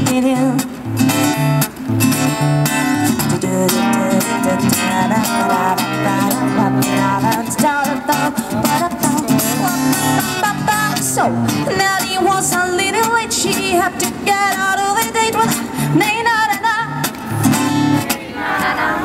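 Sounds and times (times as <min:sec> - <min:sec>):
pop band instrumental: 0:00.0 - 0:18.9
acoustic guitar strumming: 0:00.0 - 0:19.0
person singing: 0:03.3 - 0:17.0.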